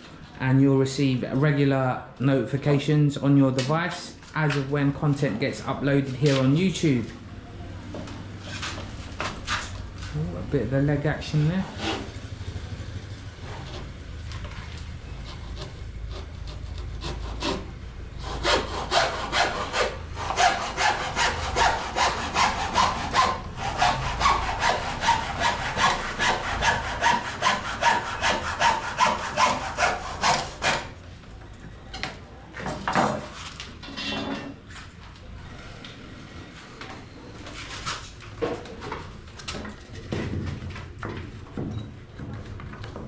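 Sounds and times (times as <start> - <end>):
hand saw cutting: 11.4 - 12.2, 15.3 - 30.9.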